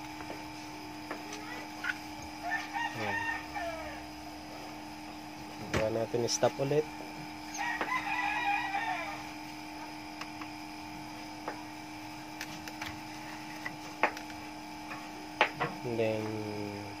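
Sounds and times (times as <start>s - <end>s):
steady hum: 0.0s - 17.0s
bird crowing: 1.8s - 4.3s, 7.5s - 9.4s.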